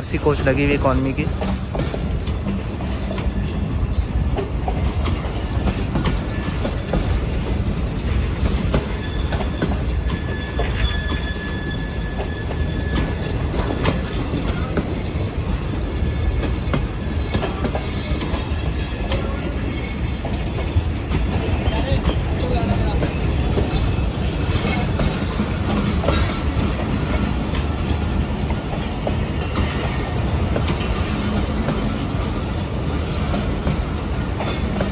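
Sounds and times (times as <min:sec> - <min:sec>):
train rumble: 0:00.0 - 0:34.9
train wheels clacking over rail joints: 0:00.0 - 0:34.9
wheel squeal: 0:08.1 - 0:15.3, 0:16.0 - 0:20.4.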